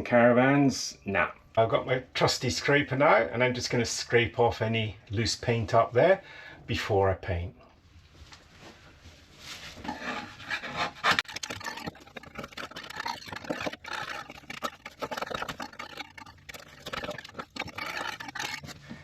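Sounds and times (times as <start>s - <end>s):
paint scraper scraping paint: 9.8s - 19.0s.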